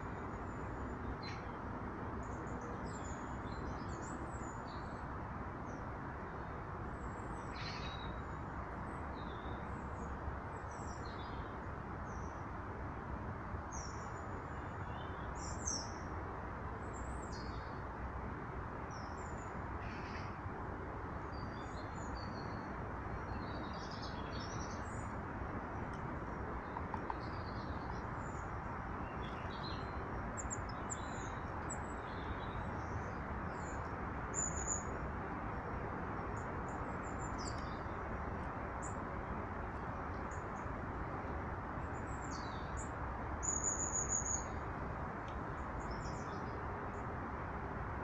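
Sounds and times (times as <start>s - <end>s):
small birds chirping: 25.8s - 35.0s, 36.2s - 38.1s.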